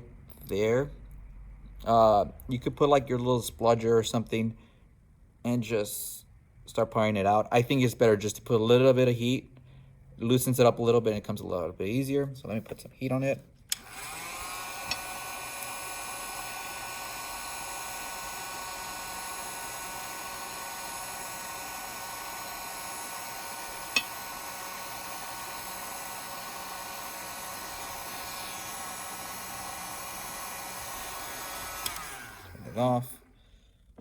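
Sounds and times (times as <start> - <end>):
heat gun blowing: 13.7 - 33.4
sharp click: 23.9 - 24.2.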